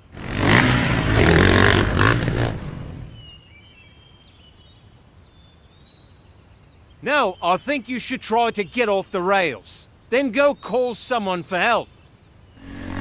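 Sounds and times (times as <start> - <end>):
vehicle engine revving hard: 0.0 - 3.1, 12.6 - 13.0
faint bird chirps: 3.0 - 13.0.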